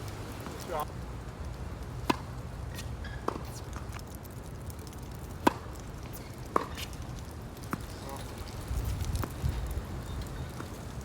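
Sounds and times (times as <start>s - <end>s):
wind rumble on microphone: 8.2s - 11.0s.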